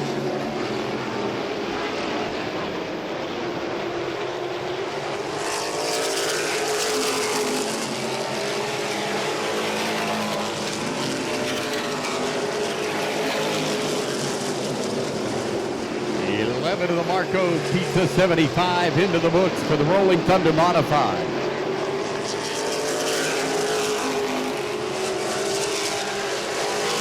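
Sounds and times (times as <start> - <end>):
race car engines droning: 0.0 - 27.0.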